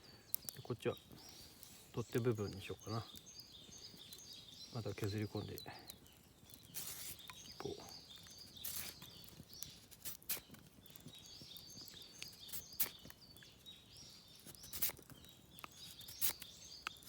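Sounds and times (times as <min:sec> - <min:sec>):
birds chirping: 0:00.0 - 0:17.0
knife scraping a branch: 0:06.6 - 0:07.6, 0:08.3 - 0:10.7, 0:12.1 - 0:13.1, 0:14.1 - 0:17.0.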